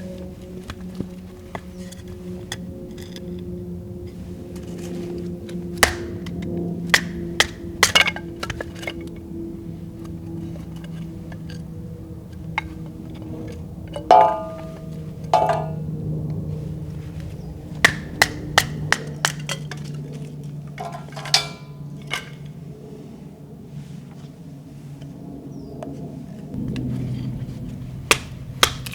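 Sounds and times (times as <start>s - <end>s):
steady low hum: 0.0s - 25.5s
hard objects clinking: 13.9s - 15.8s, 20.8s - 22.4s.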